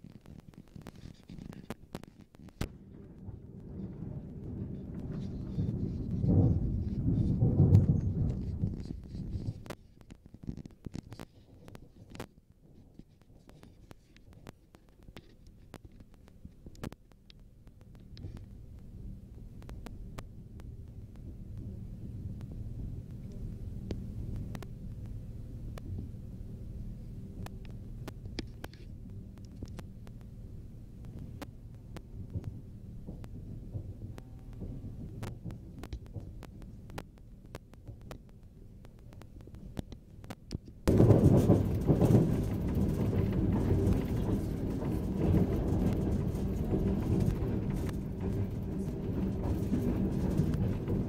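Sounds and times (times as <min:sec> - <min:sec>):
train clicks and rattles: 0:00.0 - 0:51.0
train rumbling: 0:02.7 - 0:09.7, 0:18.4 - 0:38.0, 0:40.9 - 0:51.0.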